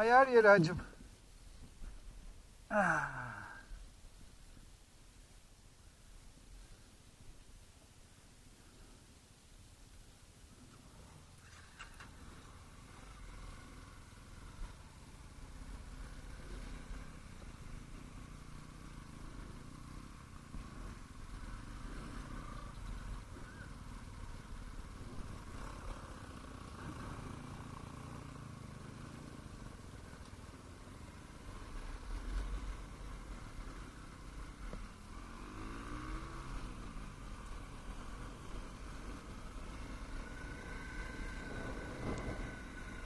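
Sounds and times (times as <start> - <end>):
distant motorbike engines: 10.7 - 43.0.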